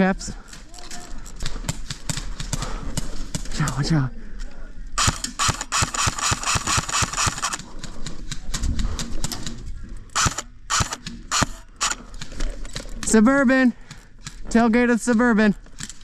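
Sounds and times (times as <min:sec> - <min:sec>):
airsoft guns firing: 0:05.0 - 0:07.8, 0:10.2 - 0:12.1.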